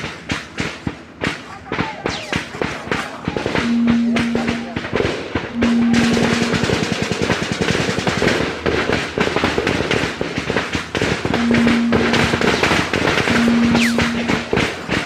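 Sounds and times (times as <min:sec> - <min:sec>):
automatic gunfire: 0:00.6 - 0:15.0
steady low tone: 0:03.5 - 0:07.0, 0:11.3 - 0:15.0.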